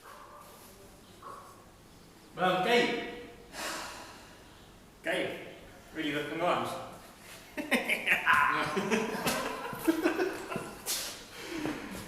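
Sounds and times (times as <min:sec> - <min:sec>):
men chuckling and muttering: 0:07.5 - 0:12.0.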